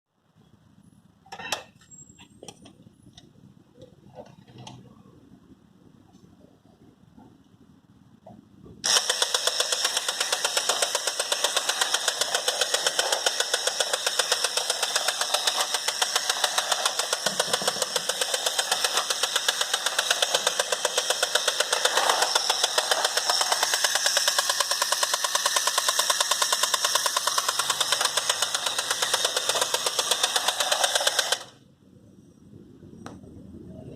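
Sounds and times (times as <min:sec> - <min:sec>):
toy motor rattling buzz: 0:08.8 - 0:31.6.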